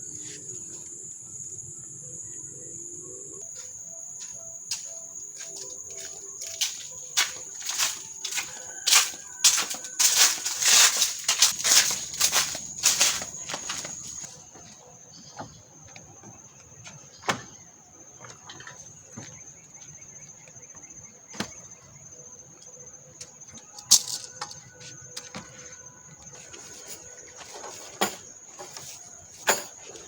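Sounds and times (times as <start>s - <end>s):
high-pitched insect drone: 0.0s - 14.3s.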